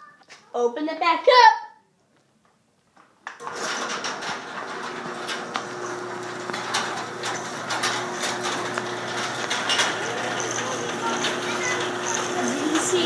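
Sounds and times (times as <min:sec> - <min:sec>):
chain and door clattering: 0:03.4 - 0:13.0
garage door opener motor hum: 0:03.4 - 0:13.0.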